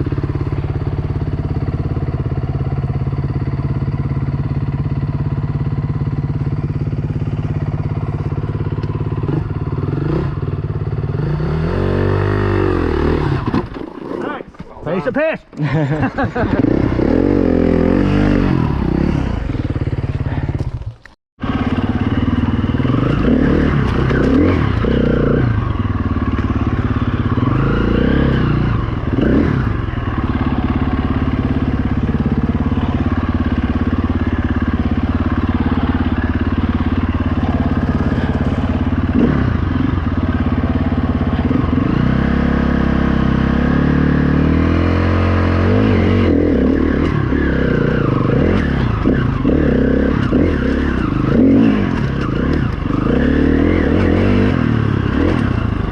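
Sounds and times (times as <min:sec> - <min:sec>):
dirt bike engine revving: 0:05.3 - 0:14.4, 0:15.6 - 0:20.7, 0:21.4 - 0:55.9.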